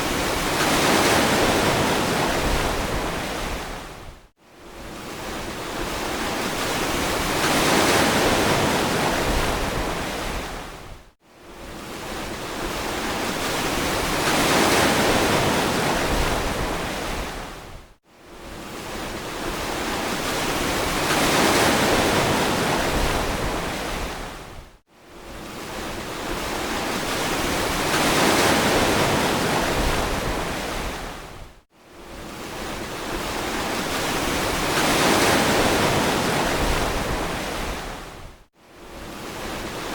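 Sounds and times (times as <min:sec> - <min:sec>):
ocean surf washing on beach: 0:00.0 - 0:04.1, 0:04.8 - 0:10.9, 0:11.7 - 0:17.8, 0:18.4 - 0:24.6, 0:25.3 - 0:39.9.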